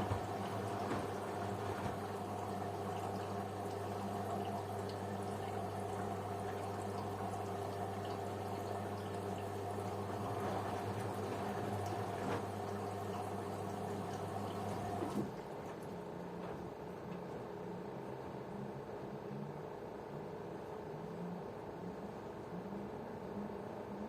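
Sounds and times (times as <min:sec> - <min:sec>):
water flowing in: 0:00.0 - 0:16.0
washing machine running: 0:00.0 - 0:17.4.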